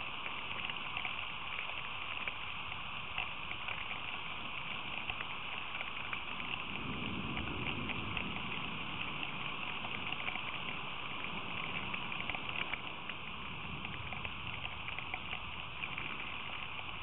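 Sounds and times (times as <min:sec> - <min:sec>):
rain hiss: 0:00.0 - 0:17.0
raindrop ticks: 0:00.0 - 0:17.0.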